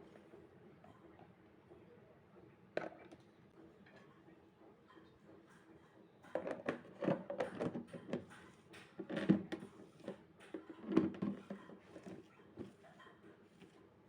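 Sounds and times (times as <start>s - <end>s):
light knocks and clatters: 4.8s - 13.9s.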